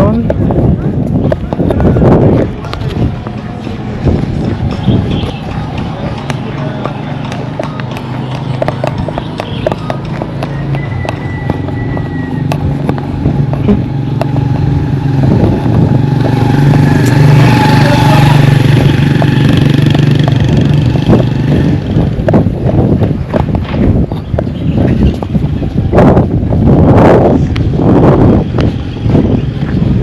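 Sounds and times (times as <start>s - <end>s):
vehicle engine passing by: 5.6s - 22.6s.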